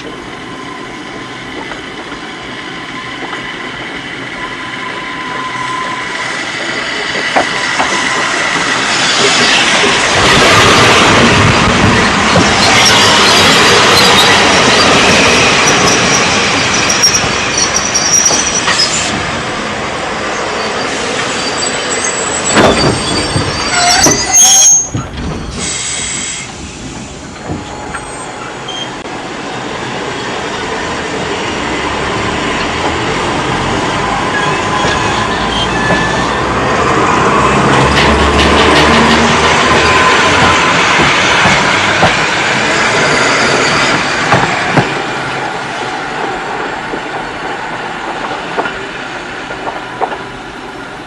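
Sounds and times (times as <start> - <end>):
train wheels squealing on rails: 0.0 - 19.2, 20.2 - 29.0, 29.8 - 46.3
train running gear clatter: 6.6 - 19.2, 21.2 - 29.0, 34.2 - 51.0.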